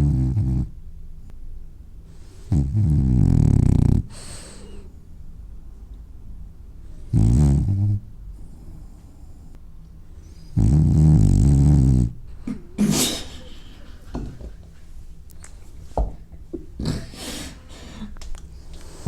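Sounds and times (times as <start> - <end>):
dog snoring: 0.0 - 0.7, 2.4 - 4.8, 7.0 - 9.5, 10.3 - 12.2
dog snorting and sniffing: 2.4 - 4.5, 7.0 - 9.4, 10.4 - 12.2.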